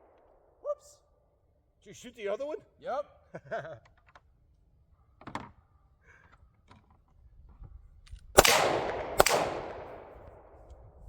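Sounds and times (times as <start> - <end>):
loud gunshot: 8.4 - 10.6.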